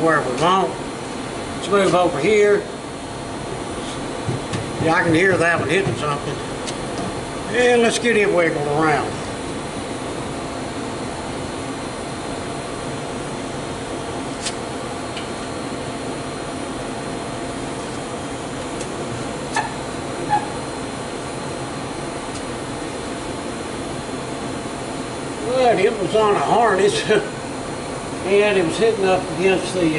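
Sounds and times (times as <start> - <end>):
whirring machinery hum: 0.0 - 29.9.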